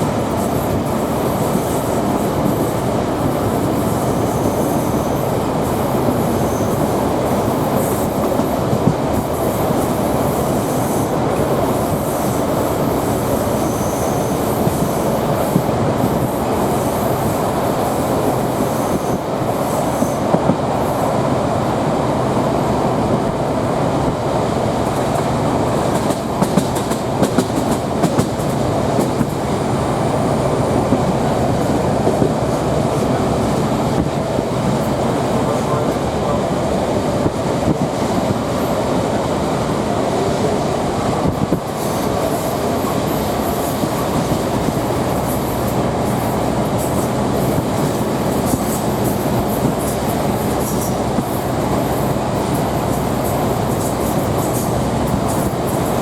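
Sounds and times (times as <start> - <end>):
train wheels rumbling on track: 0.0 - 56.0
diesel engine running: 21.9 - 34.2.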